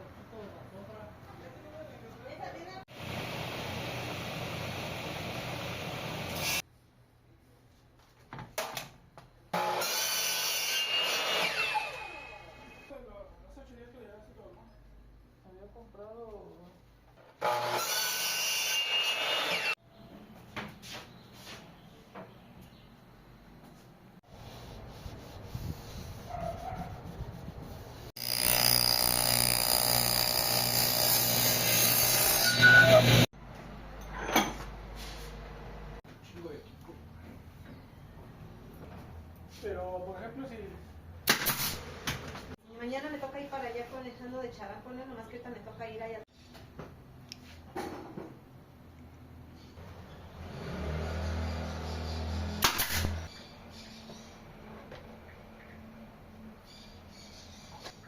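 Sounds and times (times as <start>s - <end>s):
woodworking power tool running: 17.4s - 19.8s, 28.2s - 33.3s.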